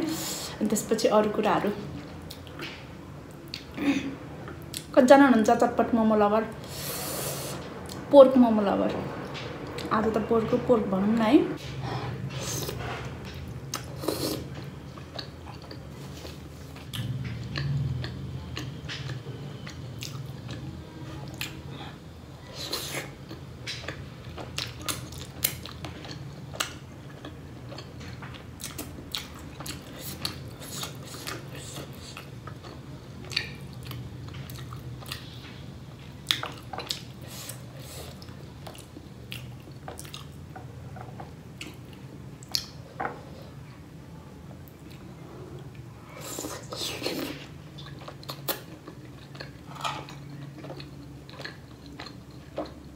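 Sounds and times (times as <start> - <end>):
person chewing food: 12.4 - 35.6, 36.2 - 43.3, 44.6 - 52.9.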